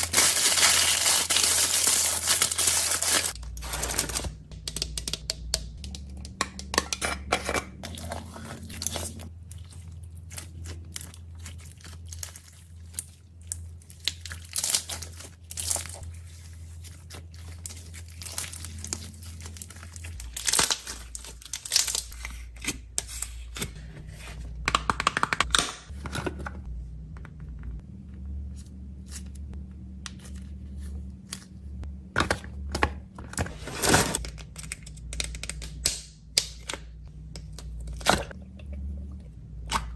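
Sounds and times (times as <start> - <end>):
snack packaging crinkling: 0.0 - 4.2
low steady hum: 0.0 - 39.9.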